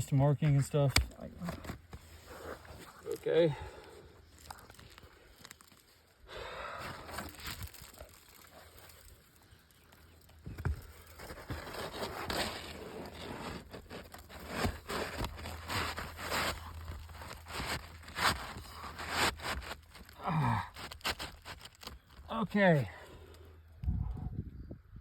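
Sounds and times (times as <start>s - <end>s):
roof shingles scraping and tearing: 10.8s - 22.4s.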